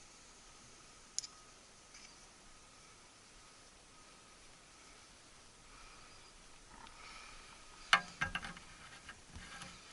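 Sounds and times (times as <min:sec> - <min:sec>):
faint room tone hiss: 0:00.0 - 0:09.9
small click: 0:01.2 - 0:02.2.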